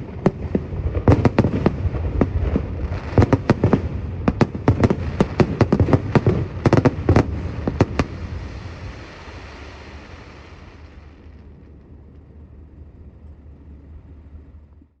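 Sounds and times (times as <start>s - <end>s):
fireworks bangs: 0.0s - 11.4s
low rumbling echo and crackle: 0.0s - 15.0s.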